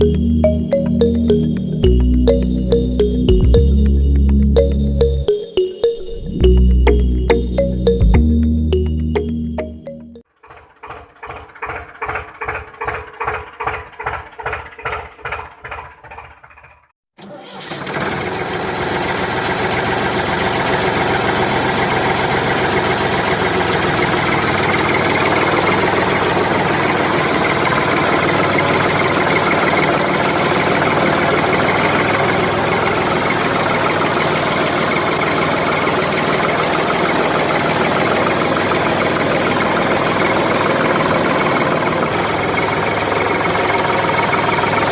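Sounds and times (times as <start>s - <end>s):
engine cranking: 10.4s - 19.5s
engine running: 17.7s - 44.9s.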